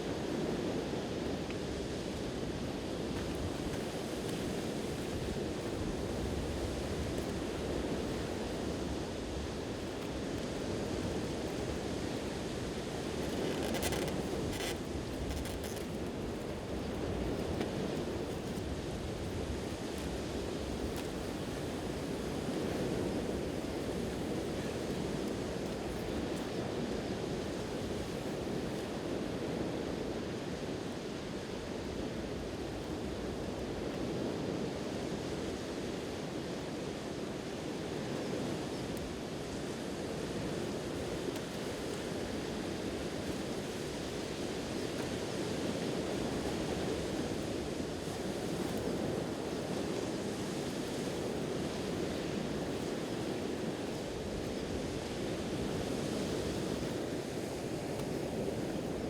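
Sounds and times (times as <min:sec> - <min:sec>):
wind: 0:00.0 - 0:59.0
ocean waves on shore: 0:39.0 - 0:59.0.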